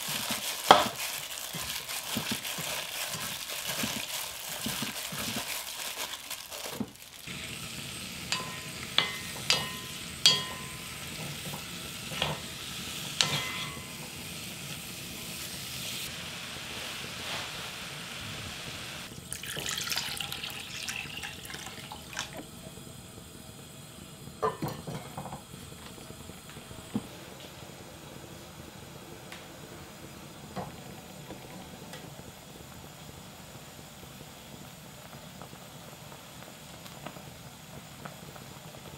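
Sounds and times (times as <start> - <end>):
meat sizzling in a pot: 0.0 - 38.9
utensil knocking against pot: 8.3 - 10.8.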